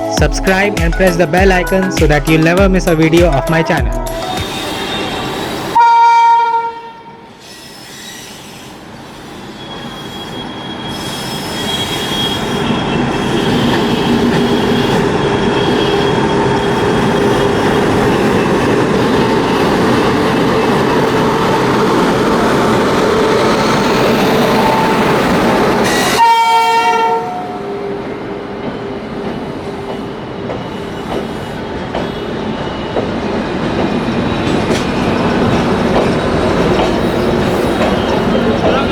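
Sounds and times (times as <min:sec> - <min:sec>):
locomotive horn blast: 0:03.5 - 0:07.2, 0:25.8 - 0:27.8
train wheels rumbling on rail: 0:07.3 - 0:27.2, 0:28.2 - 0:38.9.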